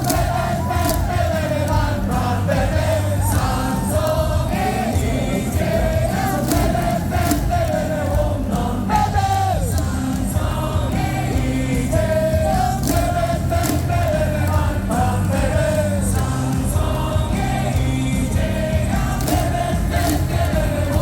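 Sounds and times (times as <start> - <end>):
amplified music with beat: 0.0 - 21.0
crowd singing a cheer song: 0.0 - 21.0.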